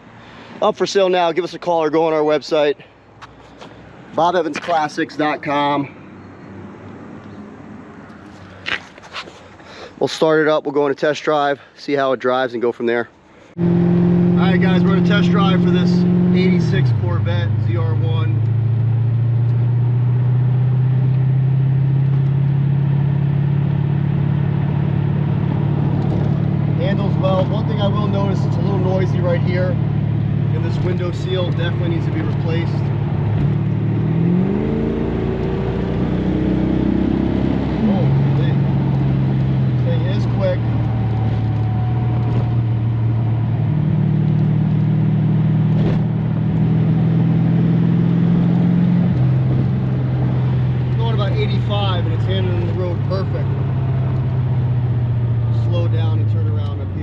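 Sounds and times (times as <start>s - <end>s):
road and wind noise: 0.0s - 57.0s
man talking: 0.6s - 2.9s, 4.1s - 6.0s, 10.0s - 13.1s, 14.3s - 18.4s, 26.8s - 29.8s, 30.5s - 32.9s, 37.8s - 38.6s, 39.8s - 40.7s, 51.0s - 53.7s, 55.5s - 57.0s
car engine droning: 13.2s - 57.0s.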